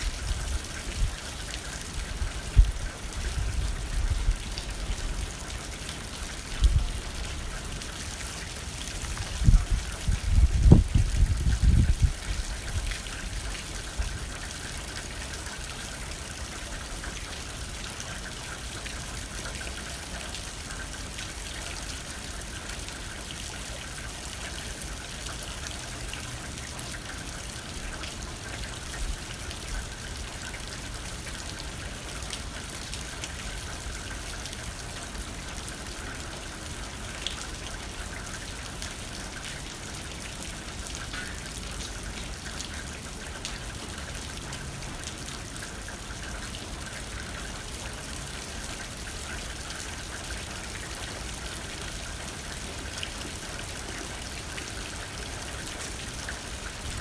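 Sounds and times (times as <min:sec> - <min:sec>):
low rumble of wind: 0:00.0 - 0:19.4.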